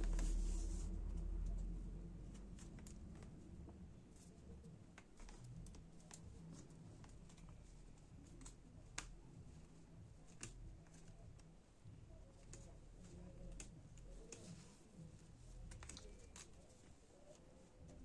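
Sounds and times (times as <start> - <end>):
low steady hum: 0.0 - 18.0
hands handling laptop plastic parts: 4.2 - 11.5, 12.2 - 18.0.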